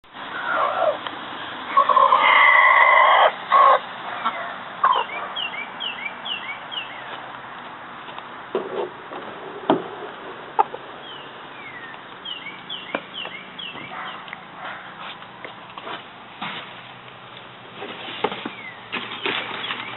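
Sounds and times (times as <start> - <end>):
rooster clucking: 1.7 - 5.4, 10.5 - 10.9
rooster calling: 1.7 - 5.5.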